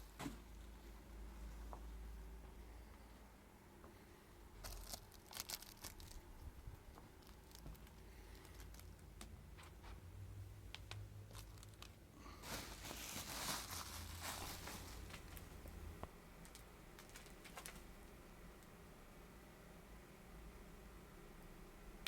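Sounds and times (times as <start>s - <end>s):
cellophane crackling: 4.6s - 9.8s, 10.7s - 15.8s, 16.4s - 17.9s.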